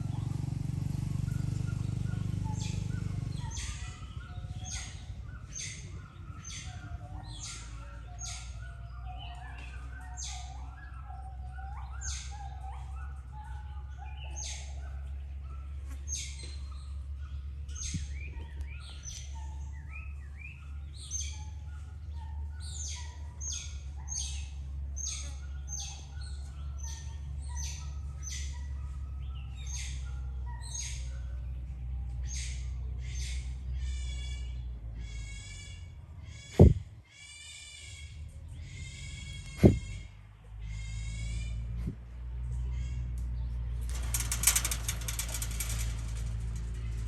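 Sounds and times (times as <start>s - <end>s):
low rumble: 43.4s - 47.0s
small animal chirping calls: 43.9s - 47.0s.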